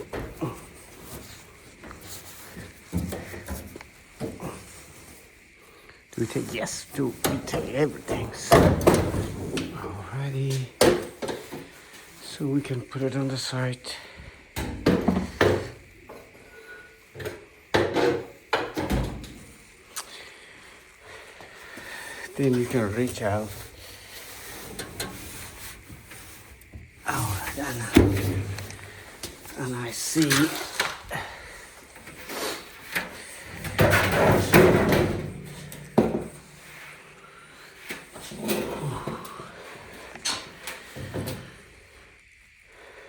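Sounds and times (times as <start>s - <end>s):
dryer parts knocking and scraping: 0.0s - 5.2s, 6.6s - 12.2s, 14.6s - 16.4s, 17.1s - 19.7s, 22.4s - 37.2s
metal clattering and scraping: 23.4s - 26.5s, 32.2s - 36.8s.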